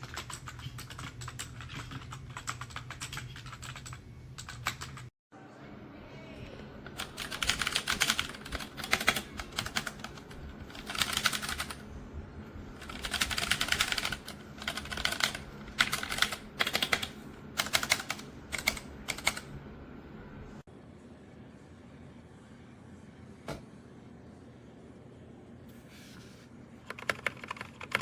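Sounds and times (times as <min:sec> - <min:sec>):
mechanical keyboard typing: 0:00.0 - 0:05.1, 0:07.0 - 0:11.8, 0:12.8 - 0:19.5, 0:26.9 - 0:28.0.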